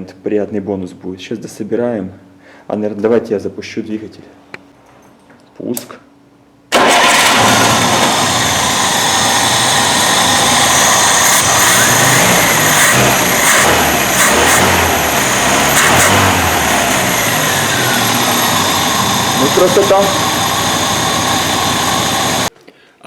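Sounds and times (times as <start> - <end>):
four-cylinder engine running: 6.7 - 22.5.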